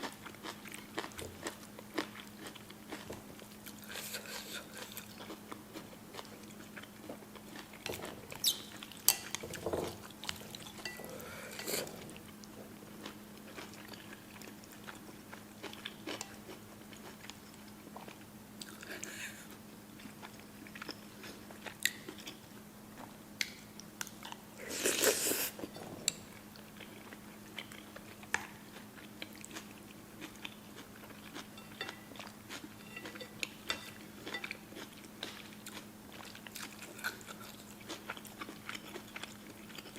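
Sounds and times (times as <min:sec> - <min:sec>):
chewing and mouth sounds: 0:00.0 - 0:22.4, 0:23.0 - 0:39.9
faint steady hum: 0:00.0 - 0:39.9.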